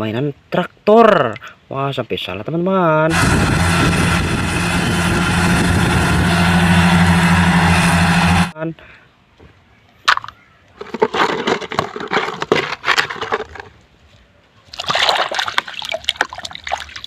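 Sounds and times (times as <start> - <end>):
scrubbing plastic toy: 10.8 - 13.7
water splashing and sloshing: 14.7 - 17.0.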